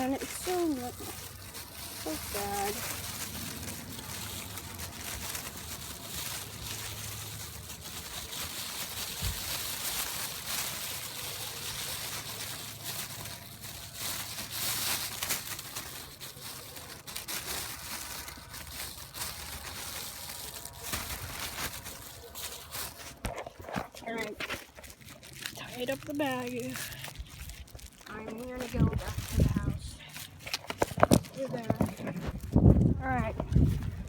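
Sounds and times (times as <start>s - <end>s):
plastic bag crinkling: 0.0s - 34.0s.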